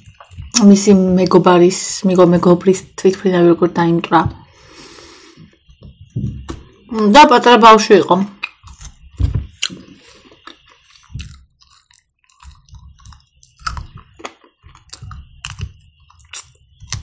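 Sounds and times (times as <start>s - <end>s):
chewing meat: 8.4s - 17.0s
mouth clicks and smacks: 8.4s - 17.0s.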